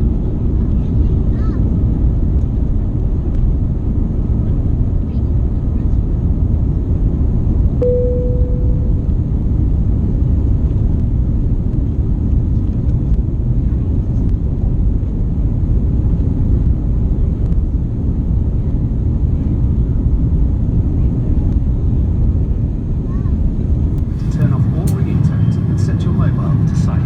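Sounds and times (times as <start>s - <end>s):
airliner cabin engine noise: 0.0s - 27.0s
short tone: 7.8s - 9.4s.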